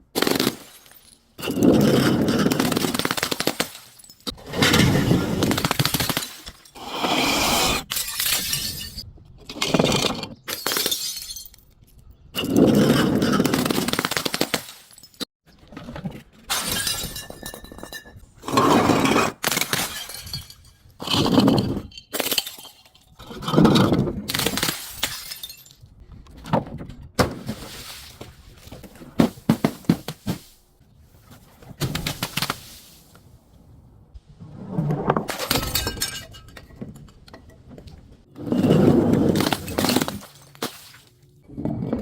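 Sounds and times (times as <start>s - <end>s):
objects crunching as crushed: 38.4s - 41.2s.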